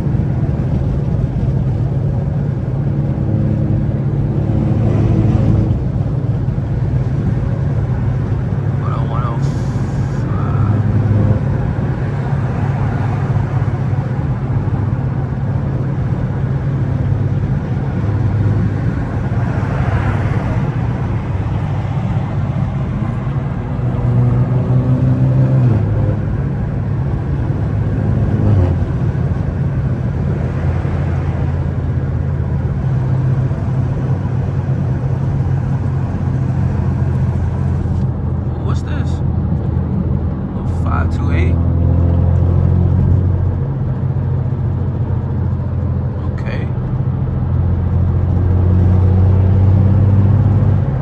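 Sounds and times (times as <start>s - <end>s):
tyre noise on wet road: 0.0s - 38.4s
car engine and exhaust droning: 0.0s - 51.0s.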